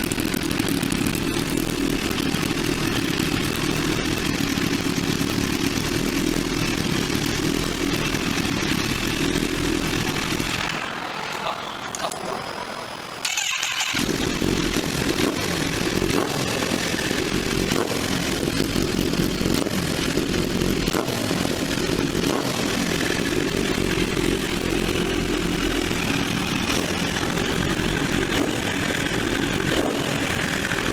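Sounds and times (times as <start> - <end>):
motorcycle engine running steadily: 0.0 - 11.0, 13.3 - 30.9.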